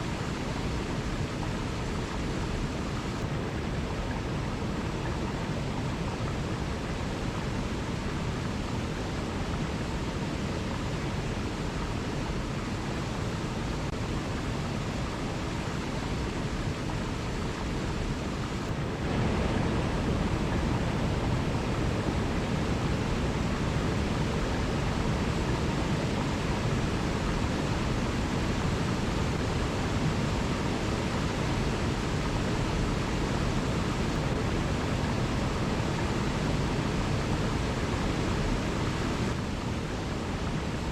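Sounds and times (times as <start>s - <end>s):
waterfall rushing: 9.8s - 40.9s.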